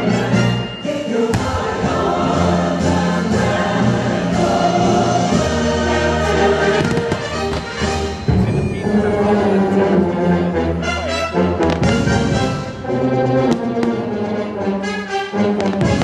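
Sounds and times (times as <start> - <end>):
choir singing with orchestra: 0.0 - 16.0
fireworks bangs: 6.7 - 9.0, 15.6 - 16.0.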